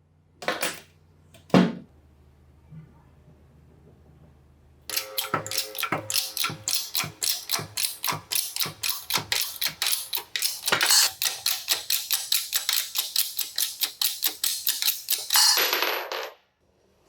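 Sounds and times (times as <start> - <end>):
sharp taps on metal: 4.9 - 15.4.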